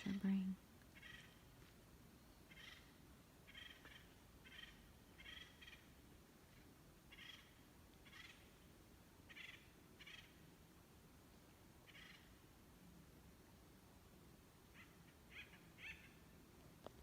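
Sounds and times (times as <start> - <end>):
faint short bird calls: 0.0 - 1.5, 2.4 - 5.9, 7.1 - 8.7, 9.3 - 10.4, 11.8 - 12.4, 14.7 - 16.3
low forest hiss: 0.0 - 17.0.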